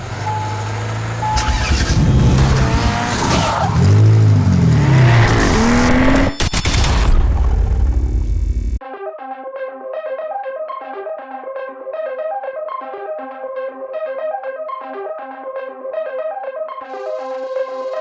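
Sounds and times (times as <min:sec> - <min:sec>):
car engines revving: 0:00.0 - 0:08.8
sharp crackle: 0:01.3 - 0:08.8.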